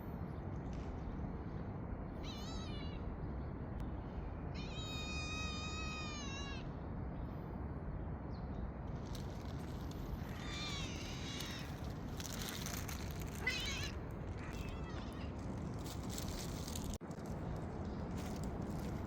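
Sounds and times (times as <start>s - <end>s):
cat meowing: 2.2s - 3.0s, 4.6s - 6.6s, 10.3s - 11.8s, 13.4s - 15.3s.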